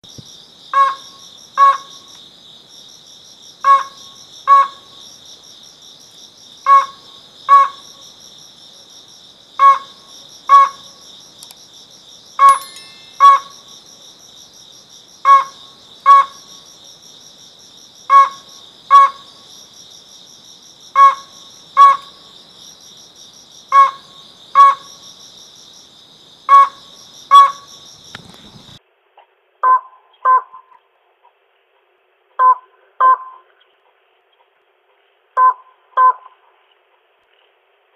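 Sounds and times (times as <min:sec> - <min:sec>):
crickets chirping: 0:00.0 - 0:28.8
crake calling: 0:12.4 - 0:13.7, 0:26.5 - 0:28.8.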